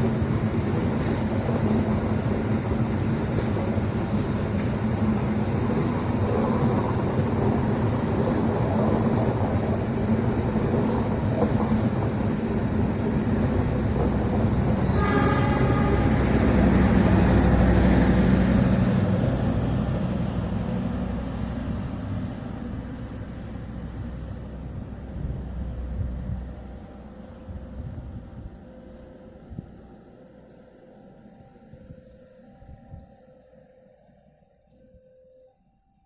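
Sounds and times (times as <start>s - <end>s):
diesel train rumbling past: 0.0s - 33.5s
train horn blast: 14.8s - 16.6s.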